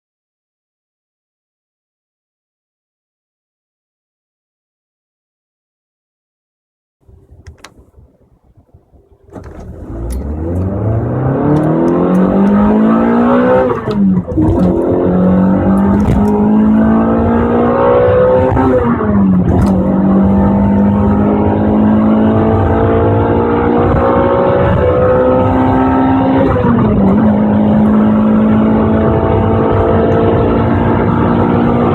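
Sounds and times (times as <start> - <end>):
car engine accelerating: 7.2 - 31.9.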